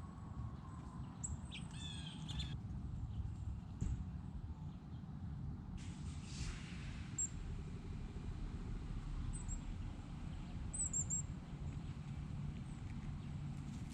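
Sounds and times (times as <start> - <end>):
small birds chirping: 1.1 - 2.6.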